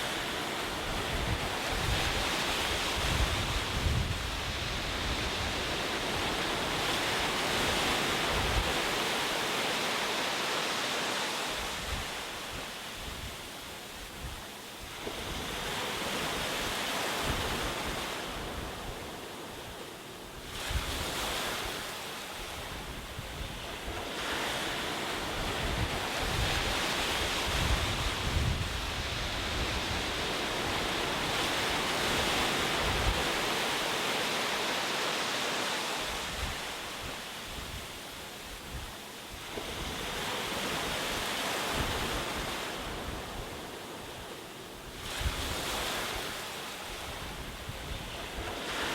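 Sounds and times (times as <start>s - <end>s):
ocean surf rushing: 0.0s - 48.9s.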